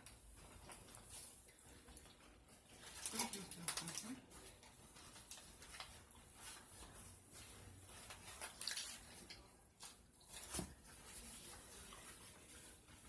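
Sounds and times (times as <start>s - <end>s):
crisp lettuce crunching: 8.1s - 10.7s.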